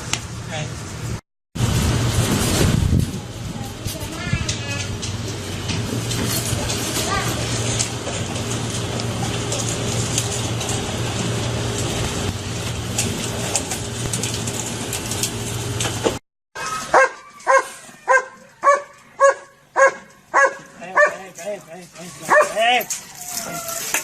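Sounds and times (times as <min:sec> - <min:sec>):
noisy rumble with clicks: 0:00.0 - 0:16.2
dog barking: 0:16.9 - 0:21.3, 0:22.3 - 0:22.6.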